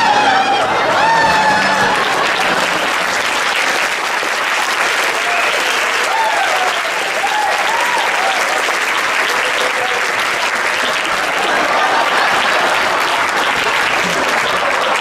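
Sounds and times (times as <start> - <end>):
people whooping: 0.0 - 3.2, 5.1 - 10.0
audience applauding: 0.0 - 15.0.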